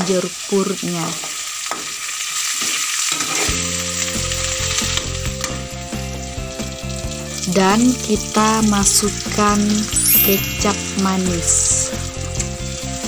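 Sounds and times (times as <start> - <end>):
paste sizzling in hot oil: 0.1 - 13.0
background music: 3.6 - 13.0.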